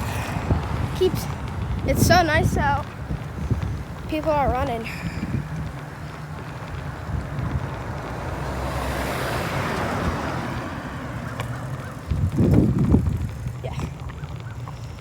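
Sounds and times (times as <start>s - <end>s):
car passing by: 0.0s - 1.8s, 4.8s - 13.2s
wind rumble on microphone: 0.0s - 15.0s.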